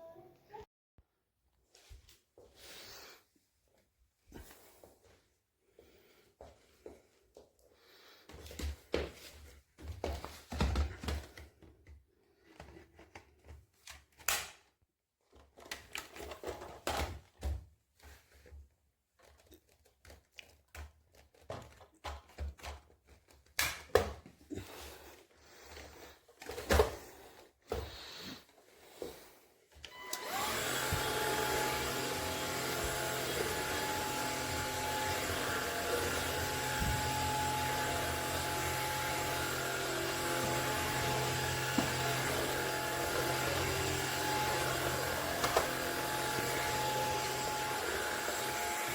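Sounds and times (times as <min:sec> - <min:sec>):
vacuum motor whine: 0:29.9 - 0:48.9.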